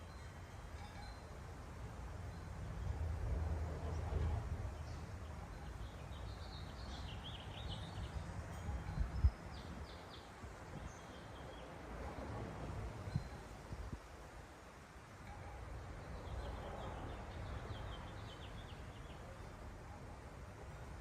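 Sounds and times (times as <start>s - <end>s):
small songbirds chirping: 4.6s - 12.4s, 15.4s - 19.6s.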